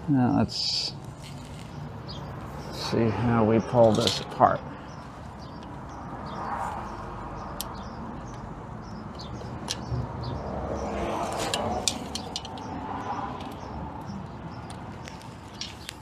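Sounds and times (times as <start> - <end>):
birds chirping: 0.1 - 16.0
metal parts clicking and clinking: 3.9 - 4.3, 11.4 - 12.7.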